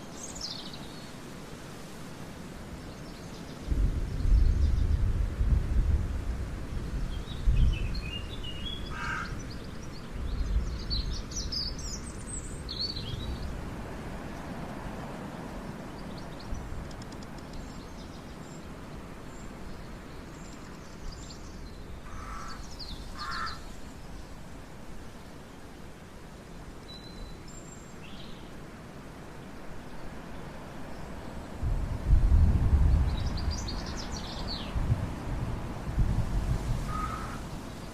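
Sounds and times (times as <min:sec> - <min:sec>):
wind rumbling on microphone: 0:01.9 - 0:26.7, 0:29.2 - 0:37.9
short bird calls: 0:08.8 - 0:09.4, 0:22.0 - 0:23.7, 0:36.9 - 0:37.5.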